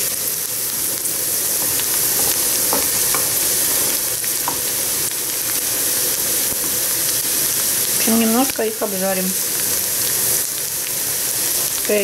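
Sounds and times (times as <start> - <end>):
vegetables sizzling in a frying pan: 0.0 - 12.0
spatula tapping against pan: 1.6 - 3.4, 4.4 - 4.7.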